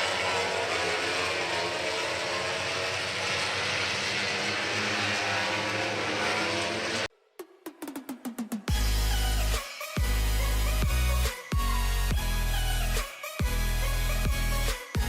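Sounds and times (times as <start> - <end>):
engine noise: 0.0 - 7.1
electronic music: 6.4 - 15.0.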